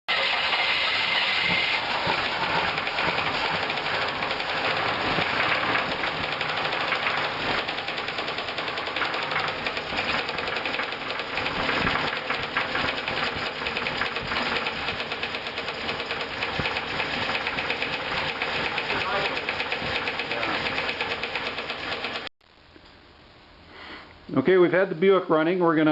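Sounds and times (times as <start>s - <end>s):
engine ticking knock: 1.8s - 22.3s.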